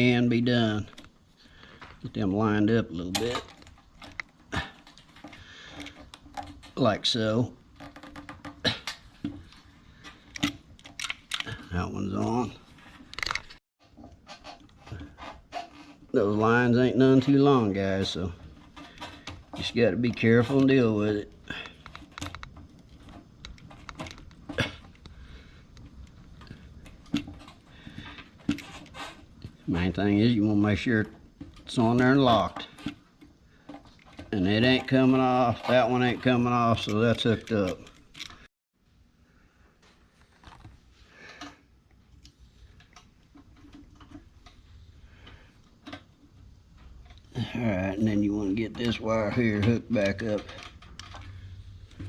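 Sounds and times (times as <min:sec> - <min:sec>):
plastic and metal parts clicking: 0:03.1 - 0:06.8, 0:07.7 - 0:11.8, 0:12.9 - 0:15.9, 0:21.5 - 0:29.6, 0:32.4 - 0:38.5, 0:48.7 - 0:52.0.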